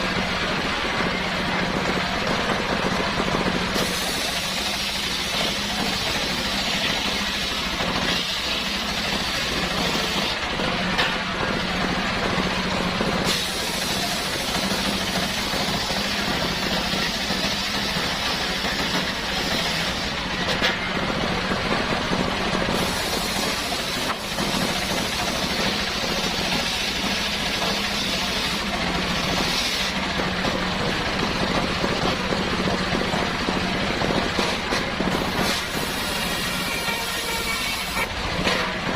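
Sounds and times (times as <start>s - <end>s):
saw cutting wood: 3.6s - 11.3s, 13.2s - 20.6s, 22.6s - 30.2s, 34.0s - 38.8s.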